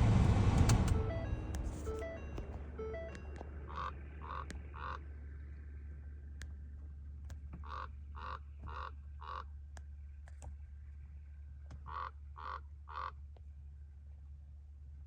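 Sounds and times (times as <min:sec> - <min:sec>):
steady low hum: 0:00.0 - 0:15.0
raven cawing: 0:03.7 - 0:05.0, 0:07.6 - 0:09.5, 0:11.9 - 0:13.2.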